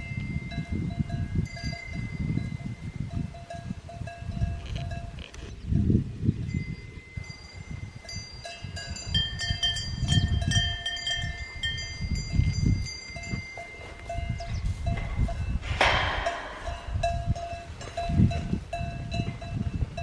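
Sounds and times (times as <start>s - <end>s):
cowbells clanking: 0.0s - 20.0s
low uneven rumble: 14.8s - 19.0s.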